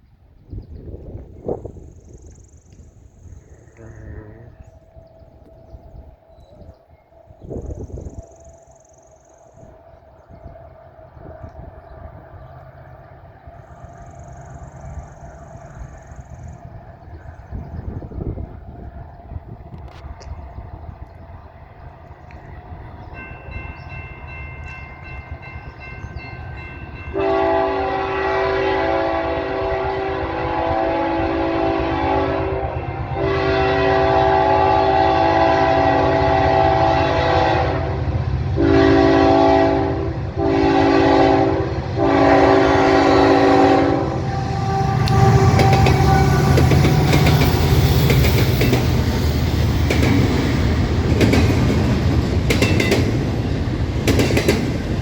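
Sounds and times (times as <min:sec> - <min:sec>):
locomotive air horn: 0:27.1 - 0:47.8
train wheels clickety-clack: 0:45.0 - 0:55.0.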